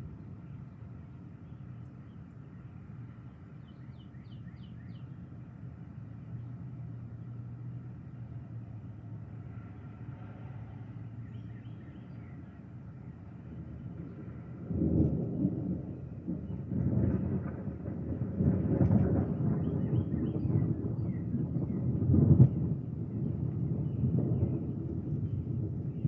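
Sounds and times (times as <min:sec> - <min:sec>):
bird chirping: 0:03.6 - 0:05.2, 0:11.2 - 0:12.5.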